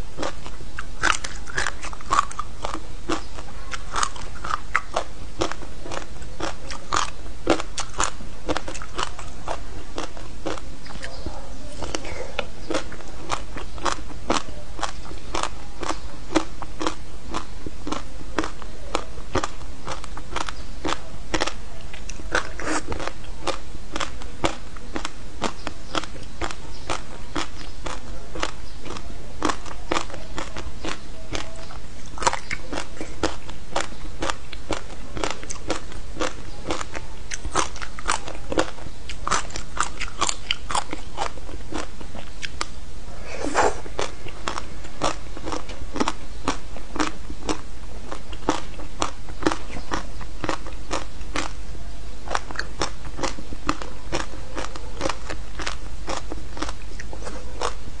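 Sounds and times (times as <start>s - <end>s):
crunching and chewing frozen fruit: 0.0s - 42.8s, 43.7s - 58.0s.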